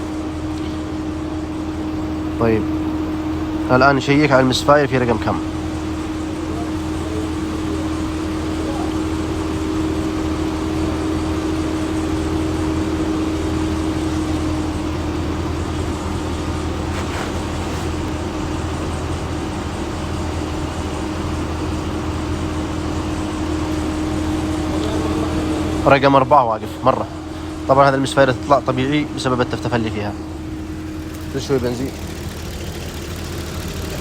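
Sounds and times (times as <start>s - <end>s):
car engine idling with misfire: 0.0s - 34.0s.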